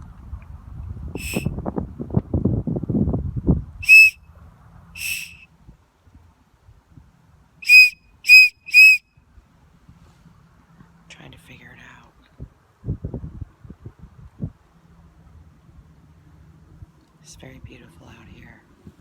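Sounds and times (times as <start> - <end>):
shrill whistle blasts: 1.2 - 1.5, 3.8 - 4.2, 5.0 - 5.4, 7.6 - 9.0.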